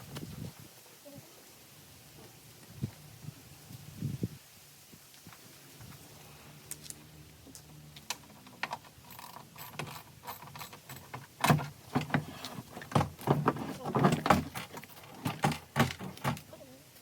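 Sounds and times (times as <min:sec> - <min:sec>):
tools and metal parts clanking: 0:08.1 - 0:16.5.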